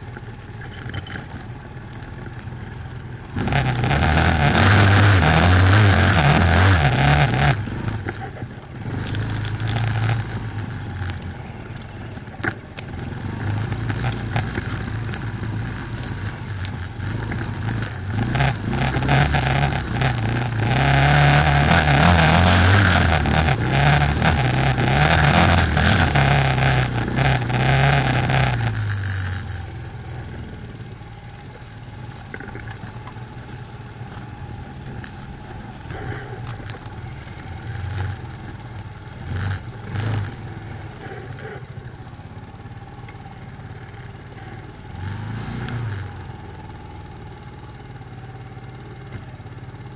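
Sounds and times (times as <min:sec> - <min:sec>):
knocks and rattles: 0:00.0 - 0:31.6
quad bike engine revving: 0:00.0 - 0:49.9.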